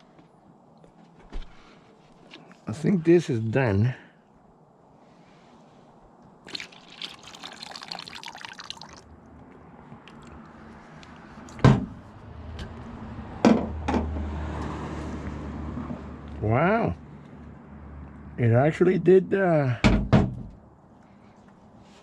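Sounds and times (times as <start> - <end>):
liquid pouring and splashing: 6.4 - 9.1
sharp knocks: 11.6 - 12.0.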